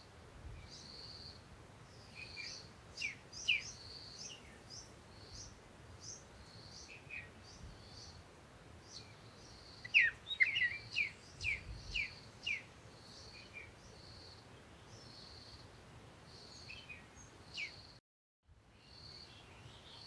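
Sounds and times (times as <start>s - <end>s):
birds chirping: 8.8s - 14.3s.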